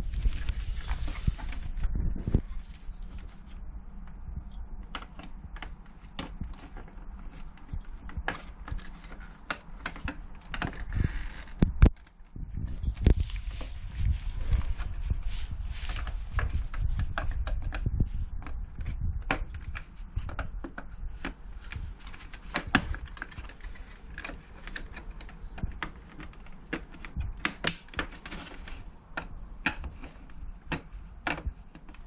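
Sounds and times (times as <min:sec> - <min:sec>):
clicks and knocks of parts handled: 0:04.8 - 0:13.8, 0:15.7 - 0:32.0.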